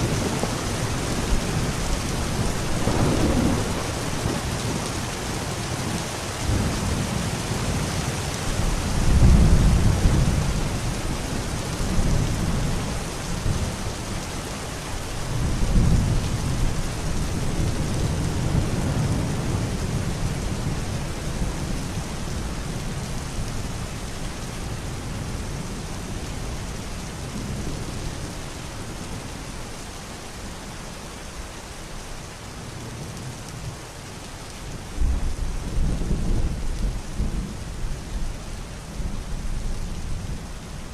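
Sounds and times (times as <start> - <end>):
thunder rolling: 0.0 - 4.9
steady rain: 0.0 - 40.9.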